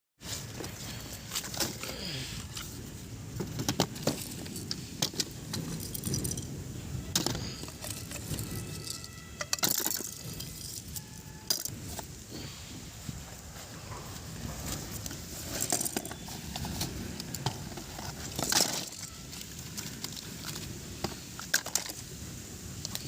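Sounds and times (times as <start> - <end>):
low background noise: 0.2 - 23.0
toys clicking and clattering: 3.4 - 12.1, 14.6 - 22.1.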